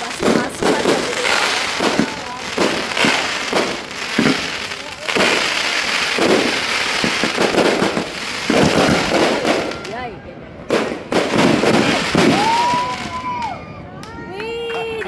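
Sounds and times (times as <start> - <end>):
firework shell bursts: 0.0 - 9.9
firework crackling: 0.0 - 14.7.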